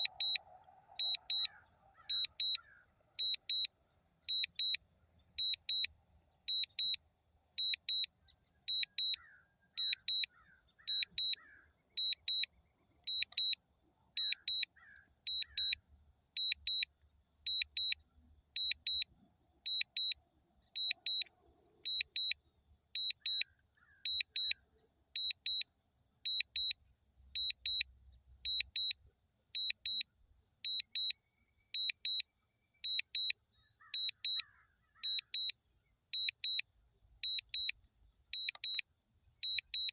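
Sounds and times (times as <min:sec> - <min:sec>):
high-pitched double beeps: 0:00.0 - 0:00.4.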